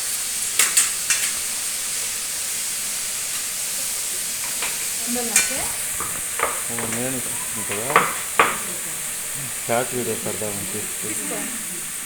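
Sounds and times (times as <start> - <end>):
food sizzling in a pan: 0.0 - 12.0
utensil clinking against pan: 4.4 - 8.7.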